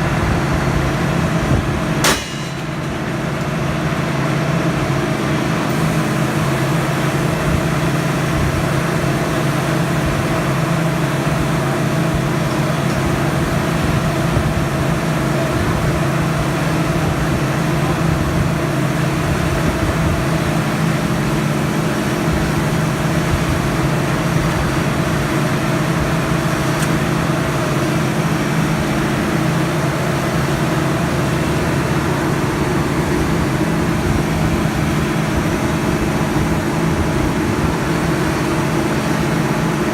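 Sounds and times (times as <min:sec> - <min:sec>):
drill rig engine droning: 0:00.0 - 0:39.9.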